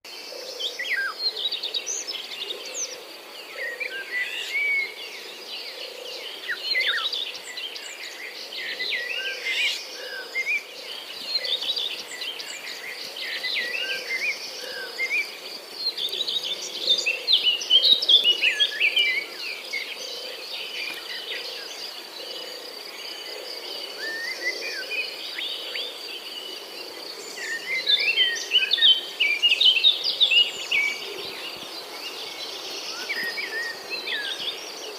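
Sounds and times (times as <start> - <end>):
birds singing and chirping: 0.1 - 34.9.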